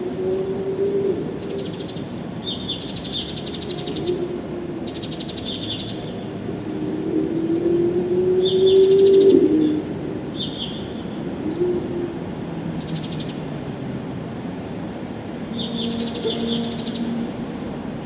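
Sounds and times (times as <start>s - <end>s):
low droning tone: 15.6s - 18.0s.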